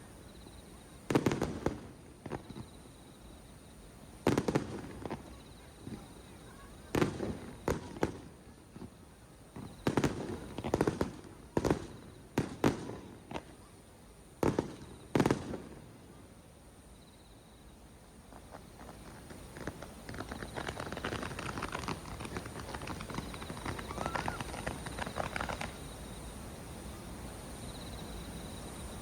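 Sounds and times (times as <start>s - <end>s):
fireworks booming: 1.1s - 3.0s, 4.2s - 13.7s, 14.4s - 16.2s, 18.3s - 25.9s.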